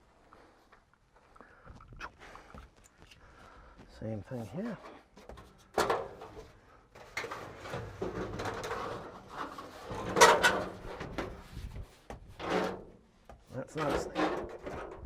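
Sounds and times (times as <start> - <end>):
parts clunking and scraping: 4.3 - 15.0.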